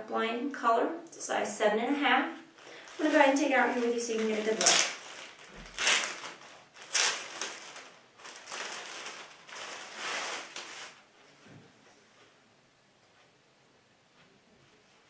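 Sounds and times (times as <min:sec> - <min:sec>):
packaging rustling and crinkling: 0:02.6 - 0:11.1.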